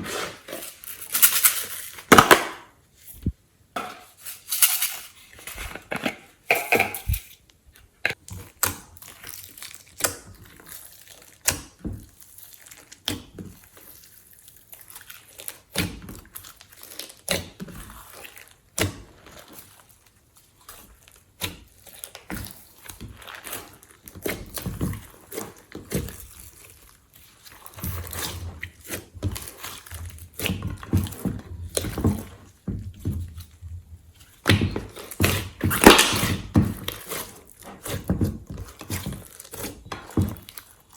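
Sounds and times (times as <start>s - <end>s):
slime squelching and popping: 34.2s - 40.9s.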